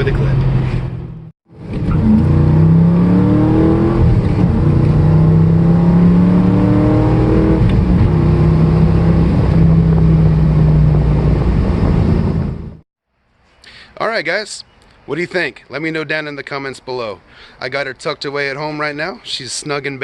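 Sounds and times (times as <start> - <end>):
car engine accelerating: 0.0 - 12.8.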